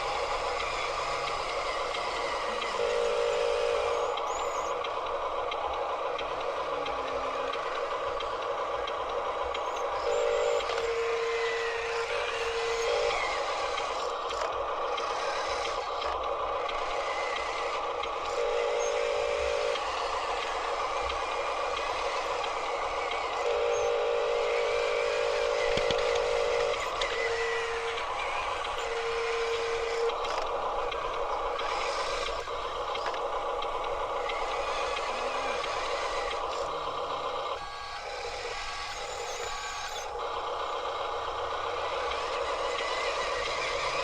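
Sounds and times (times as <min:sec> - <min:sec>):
toy truck electric motors whining: 0:00.0 - 0:44.0.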